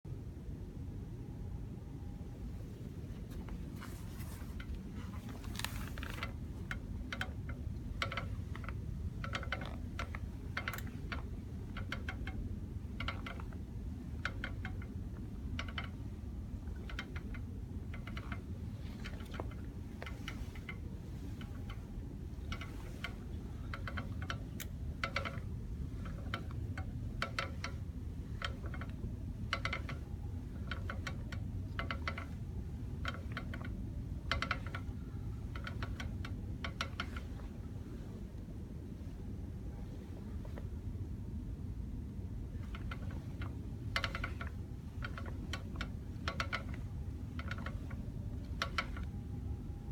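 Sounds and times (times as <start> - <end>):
brake rattling clicks: 3.3 - 37.5, 42.5 - 49.2.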